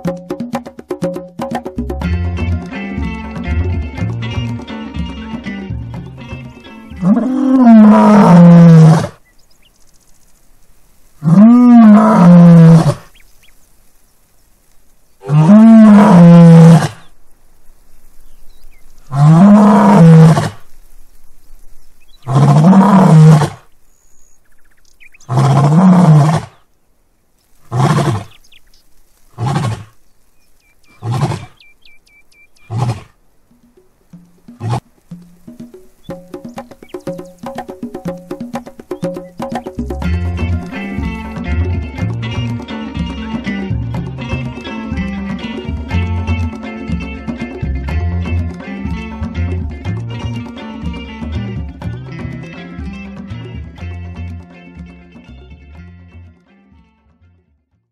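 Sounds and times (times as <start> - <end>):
lion roaring: 7.0 - 9.2, 11.2 - 13.0, 15.2 - 17.0, 19.1 - 20.6, 22.3 - 23.6, 25.3 - 26.6, 32.7 - 33.1, 34.5 - 34.9.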